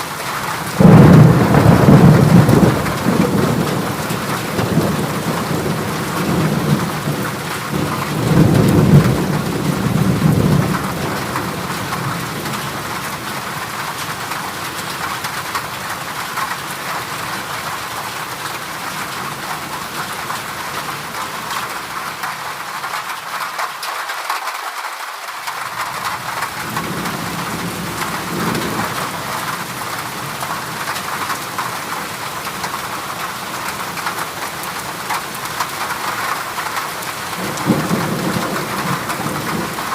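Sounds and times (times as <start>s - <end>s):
heavy rain on a metal roof: 0.0s - 39.9s
deep thunder rumble: 0.7s - 12.6s.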